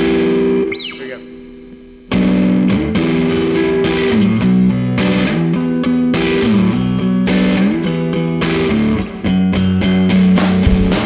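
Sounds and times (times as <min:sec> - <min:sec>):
distorted electric guitar riff: 0:00.0 - 0:11.0
sharp drum hits: 0:10.4 - 0:11.0.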